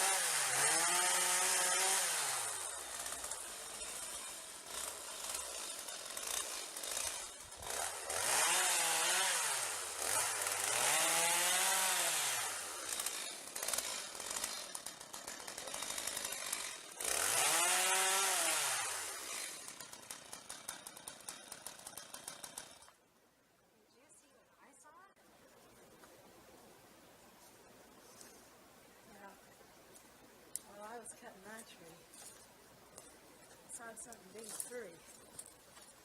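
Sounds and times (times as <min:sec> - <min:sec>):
chainsaw revving: 0:00.0 - 0:23.0.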